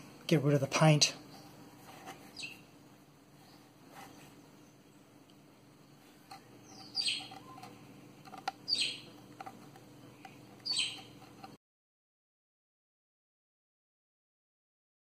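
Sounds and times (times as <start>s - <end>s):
bird chirping: 1.2s - 1.6s, 2.3s - 2.7s, 3.4s - 5.1s, 5.8s - 7.9s, 8.6s - 9.2s, 10.0s - 11.3s.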